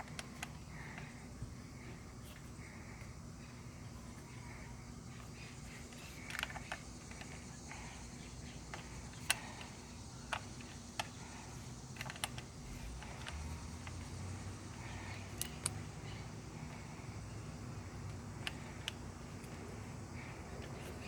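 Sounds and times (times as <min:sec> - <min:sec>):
low steady hum: 0:00.0 - 0:21.0
screw and hand tool clicks: 0:12.0 - 0:14.1, 0:15.2 - 0:15.8.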